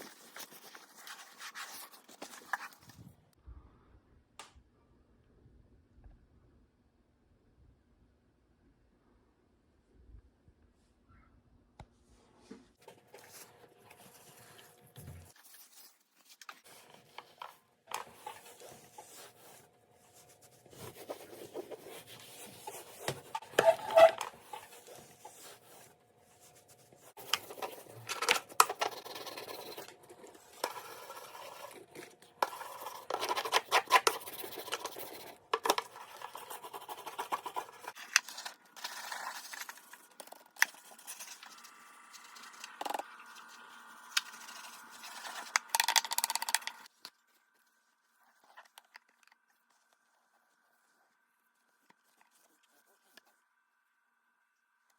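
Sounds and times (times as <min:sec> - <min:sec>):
items scraping and clicking: 0:20.7 - 0:25.9, 0:27.1 - 0:41.6, 0:42.3 - 0:47.2.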